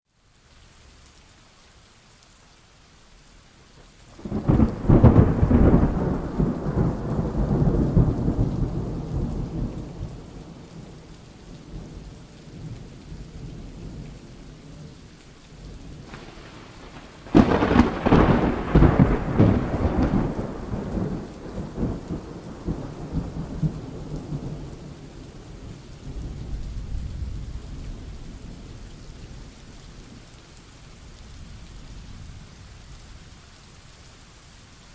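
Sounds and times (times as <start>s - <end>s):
steady rain: 0.0s - 34.9s
thunder rumbling: 4.1s - 15.0s, 15.6s - 30.3s.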